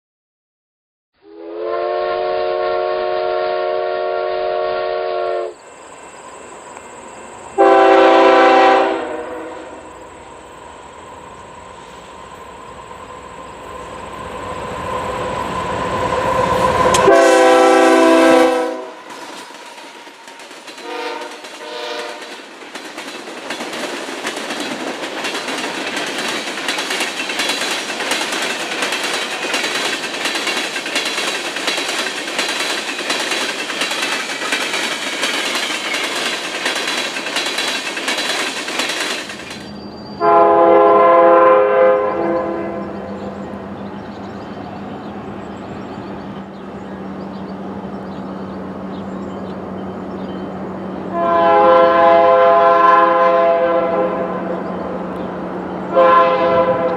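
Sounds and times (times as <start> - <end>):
train air horn blasts: 1.2 - 5.6, 7.6 - 10.0, 16.5 - 19.2, 20.8 - 22.3, 40.2 - 43.1, 51.1 - 54.6, 55.9 - 56.9
train wheel and rail noise: 1.5 - 56.9.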